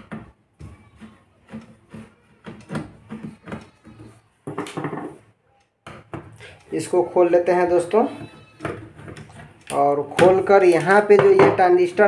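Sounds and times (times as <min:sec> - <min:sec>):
tools clicking and scraping on metal: 0:05.9 - 0:12.0.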